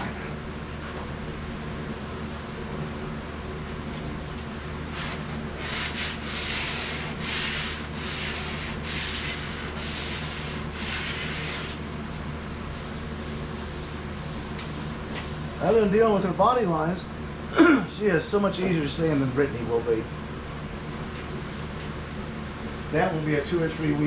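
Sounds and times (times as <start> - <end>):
sandpaper rubbing strokes: 3.8 - 11.8, 12.7 - 16.1.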